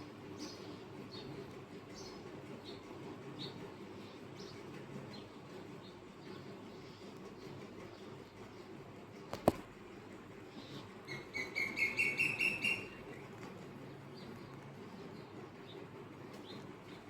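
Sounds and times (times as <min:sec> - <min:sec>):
low background noise: 0:00.0 - 0:17.0
bird chirping: 0:11.1 - 0:13.3.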